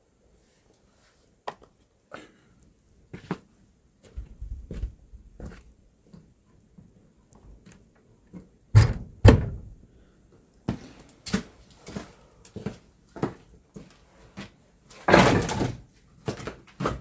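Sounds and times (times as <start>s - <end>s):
loud thuds: 8.8s - 9.8s.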